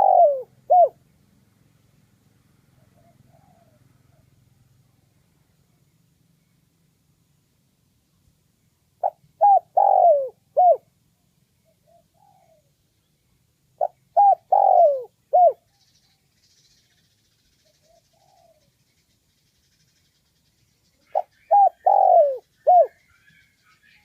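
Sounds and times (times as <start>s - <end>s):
dove cooing: 0.0s - 1.0s, 2.8s - 4.4s, 9.0s - 10.9s, 11.6s - 12.7s, 13.8s - 15.7s, 17.8s - 18.7s, 21.0s - 24.0s.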